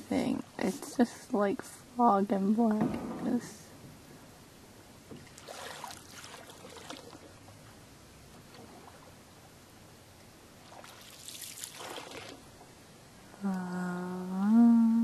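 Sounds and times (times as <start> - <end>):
faint water trickling: 0.0 - 15.0
paddle strokes splashing water: 5.1 - 9.3, 10.6 - 12.6.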